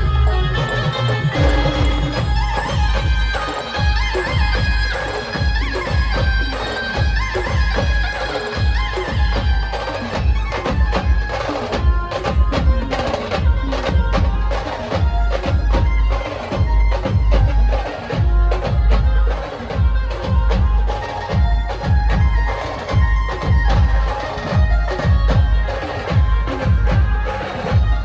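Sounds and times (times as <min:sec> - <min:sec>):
reedy melody: 0:00.0 - 0:10.7
heavy bass drum beats: 0:00.0 - 0:28.0.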